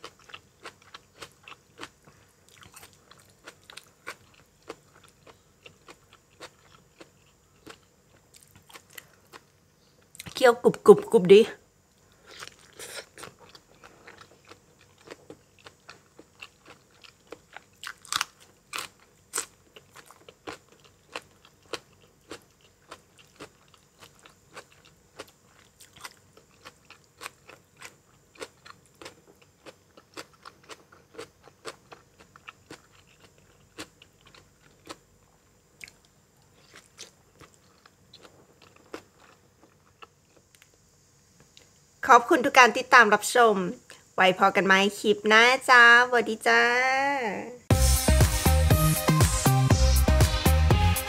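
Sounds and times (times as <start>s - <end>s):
chewing crunchy food: 0.0s - 10.4s, 12.0s - 40.8s.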